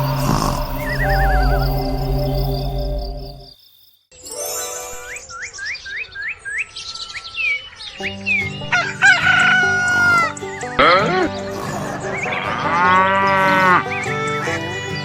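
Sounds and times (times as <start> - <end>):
background music: 0.0 - 3.5, 8.0 - 15.0
rooster crowing: 8.7 - 14.6.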